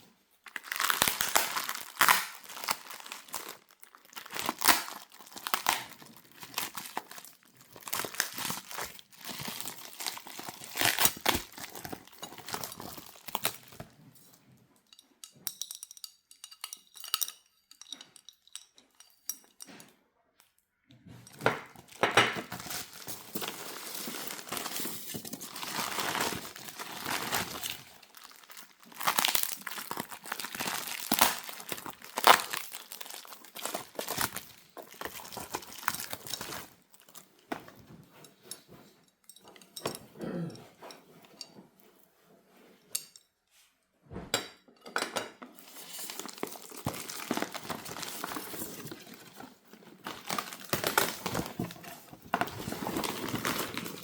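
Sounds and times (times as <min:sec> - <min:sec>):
packaging crinkling and tearing: 0:00.4 - 0:13.9, 0:21.8 - 0:37.3, 0:45.6 - 0:54.0.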